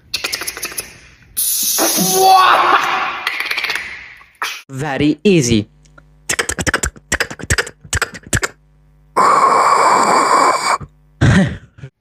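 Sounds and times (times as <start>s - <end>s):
breathy mouth hiss: 9.2s - 11.0s.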